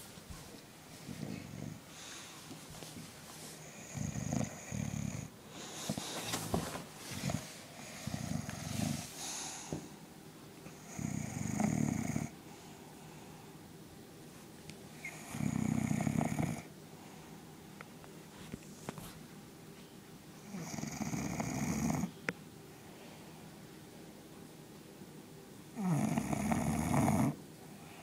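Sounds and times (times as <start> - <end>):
dog snoring with whistle: 3.6 - 5.3, 7.2 - 9.1, 10.8 - 12.3, 15.0 - 16.7, 20.4 - 22.1, 25.8 - 27.4.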